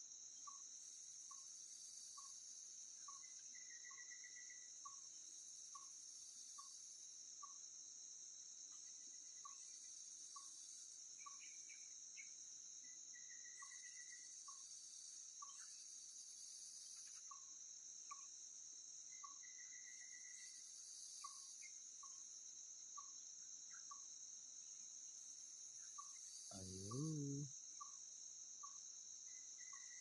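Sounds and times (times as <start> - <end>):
crickets shrilling: 25.8 - 27.8.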